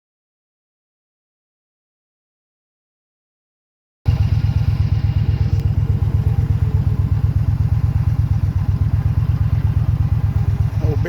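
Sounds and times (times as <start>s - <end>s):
motorcycle engine idling: 4.1s - 11.0s.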